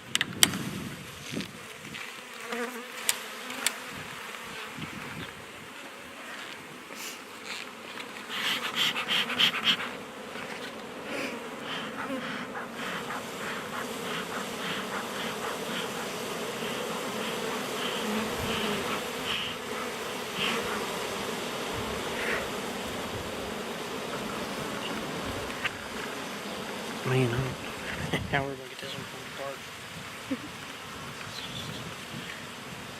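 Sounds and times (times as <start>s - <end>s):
honey bees humming: 1.0s - 32.9s
scraping and clicking of hive parts: 1.3s - 3.8s.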